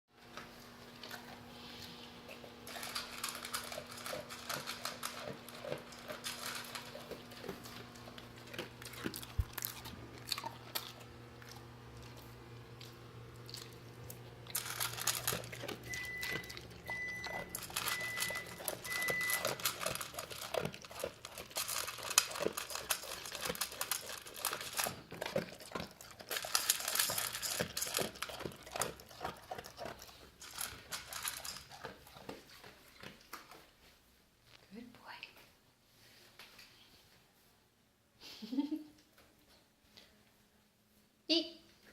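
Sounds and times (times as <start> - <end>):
pet crunching and chewing food: 0.2 - 33.9
short beeps: 15.9 - 19.5.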